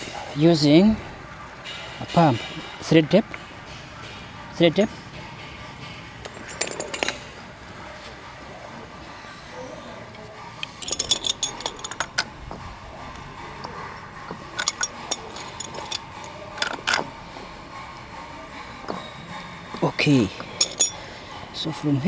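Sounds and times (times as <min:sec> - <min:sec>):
metal pipe fittings clinking: 0:06.2 - 0:07.6, 0:10.6 - 0:12.3, 0:14.3 - 0:17.1, 0:20.4 - 0:21.2.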